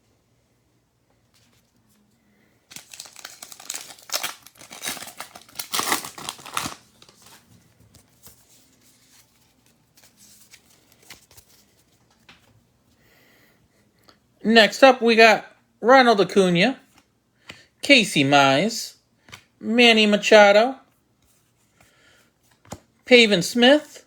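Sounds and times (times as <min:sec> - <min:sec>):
wrapper tearing and crinkling: 0:02.7 - 0:07.5
cards rustling and clicking: 0:02.7 - 0:12.6, 0:19.2 - 0:19.5, 0:21.2 - 0:22.9.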